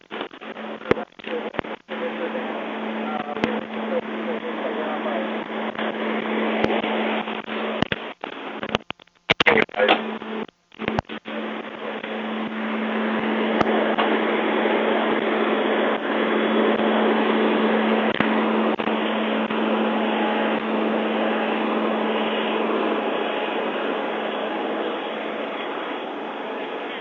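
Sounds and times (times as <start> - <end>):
mechanical drone with low hum: 0.0 - 27.0
faint clicks: 6.6 - 11.3
wide rushing noise: 11.2 - 27.0.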